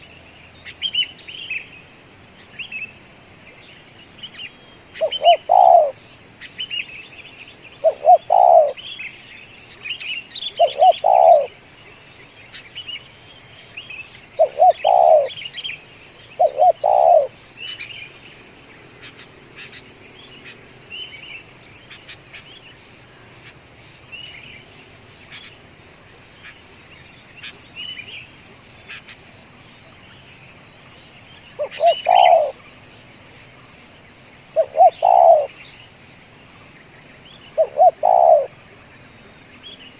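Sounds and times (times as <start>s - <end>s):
small birds chirping: 0.0s - 39.9s
steady high hiss: 0.0s - 39.9s
dove cooing: 5.0s - 6.0s, 7.8s - 8.8s, 10.5s - 11.6s, 14.4s - 15.4s, 16.4s - 17.4s, 31.6s - 32.6s, 34.6s - 35.6s, 37.6s - 38.6s.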